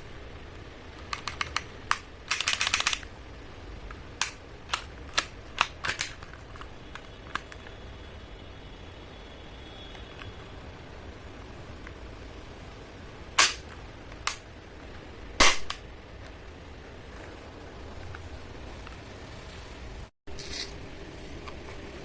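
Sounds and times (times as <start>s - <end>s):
toy pistol plastic clicks: 1.0s - 3.1s, 4.2s - 7.6s, 13.4s - 14.4s.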